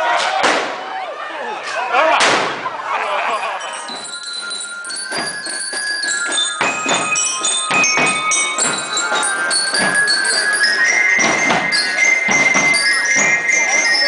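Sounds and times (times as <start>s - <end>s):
ringing bell-like tones: 2.8s - 14.0s
marching band drum beats: 3.9s - 14.0s.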